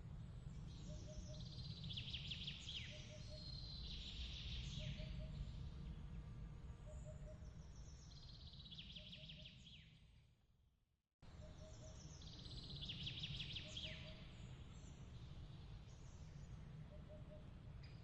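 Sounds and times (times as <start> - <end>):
low steady rumble: 0.0 - 8.5.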